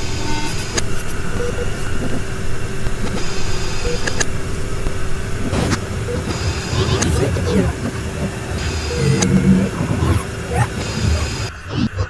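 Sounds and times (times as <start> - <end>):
low rumble: 0.0 - 11.5
constant hum: 0.0 - 12.0
sharp clicks: 0.5 - 10.1.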